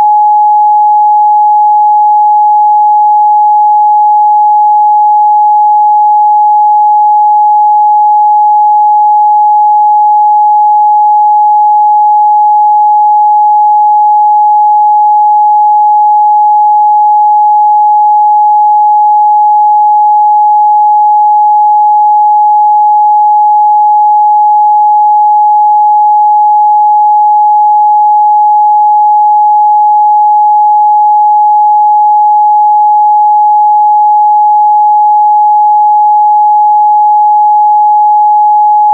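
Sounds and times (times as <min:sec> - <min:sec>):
pure sine-wave test tone: 0:00.0 - 0:38.9.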